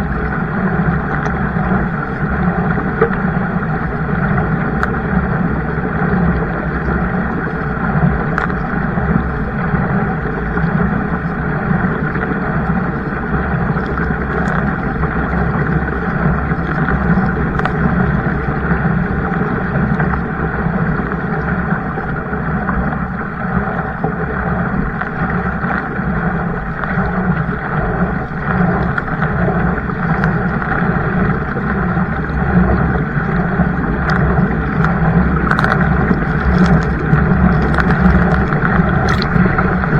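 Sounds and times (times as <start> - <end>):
faint clicks: 0.0 - 22.9, 23.6 - 39.9
wind and water rushing: 0.0 - 39.9.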